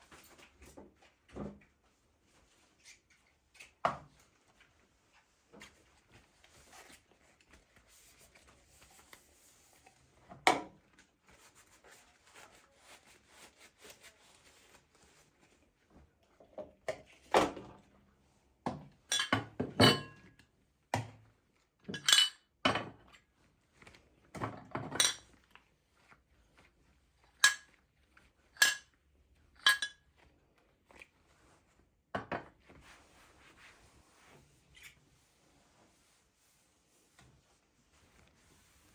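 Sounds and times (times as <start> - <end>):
dishes and cutlery clinking: 19.1 - 20.3, 21.9 - 23.0, 24.8 - 25.3, 27.4 - 27.8, 28.6 - 29.0, 29.6 - 30.1
quiet rustling: 32.6 - 38.9.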